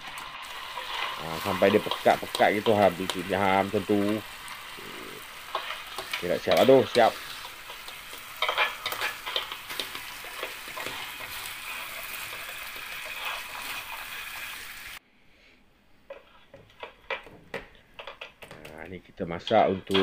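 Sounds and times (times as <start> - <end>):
crab sizzling in a wok: 0.0 - 15.0
metal spatula scraping wok: 0.4 - 14.8.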